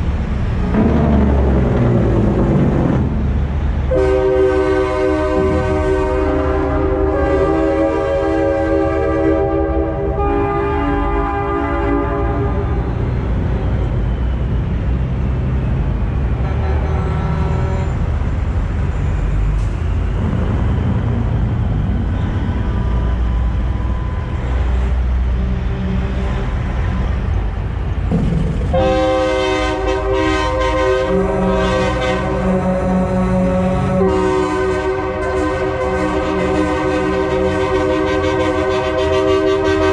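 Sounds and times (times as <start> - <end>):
diesel truck engines running: 0.0 - 7.0, 12.4 - 39.9
air horns blowing chords: 3.9 - 12.9, 28.7 - 39.9.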